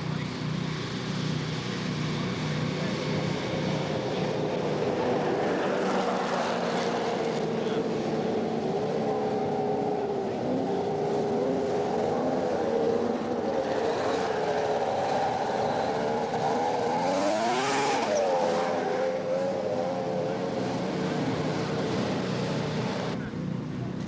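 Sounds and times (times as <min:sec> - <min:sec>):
snowmobile engines running: 0:00.0 - 0:24.0
snowmobile passing by: 0:02.8 - 0:07.9, 0:09.1 - 0:20.4.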